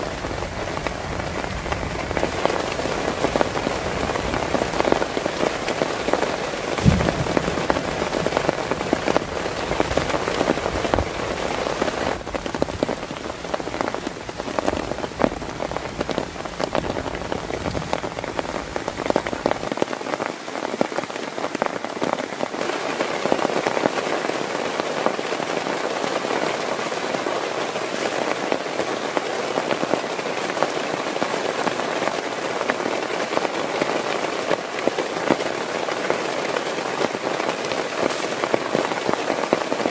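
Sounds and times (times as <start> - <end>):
heavy rain falling: 0.0 - 39.9
low thump: 6.8 - 11.1.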